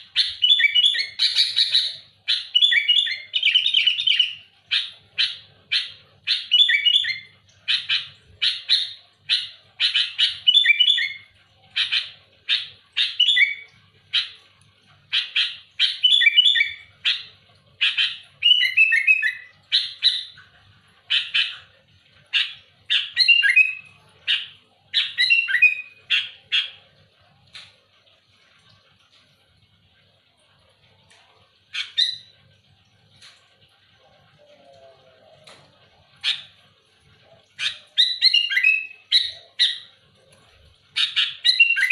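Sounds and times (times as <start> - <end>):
bird singing sharp phrases: 0.1 - 14.4, 15.1 - 20.4, 21.1 - 26.8, 37.2 - 39.9, 40.9 - 41.9.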